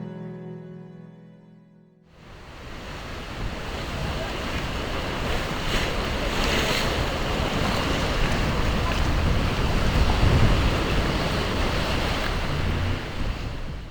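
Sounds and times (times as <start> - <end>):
surf breaking on shore: 2.2 - 13.9
wind rumbling on microphone: 2.3 - 13.9.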